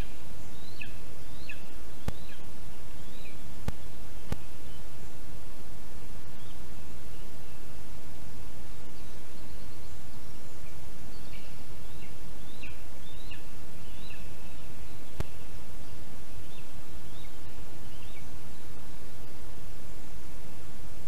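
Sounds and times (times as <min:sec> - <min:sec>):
bird chirping calls: 0:00.0 - 0:05.0
steady hiss: 0:00.0 - 0:21.0.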